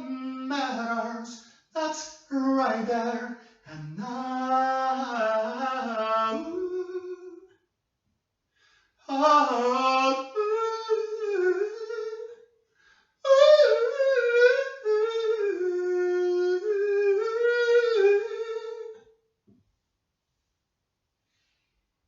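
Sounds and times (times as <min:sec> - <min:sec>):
person singing unaccompanied: 0:00.0 - 0:07.5, 0:09.1 - 0:12.4, 0:13.3 - 0:19.0.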